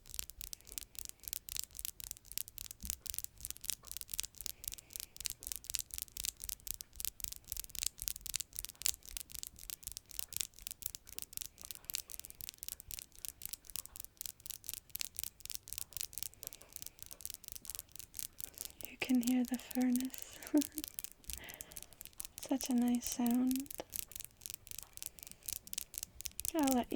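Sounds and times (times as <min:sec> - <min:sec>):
fingernails scratching and tapping: 0:00.0 - 0:26.9
low furnace hum: 0:14.8 - 0:26.9.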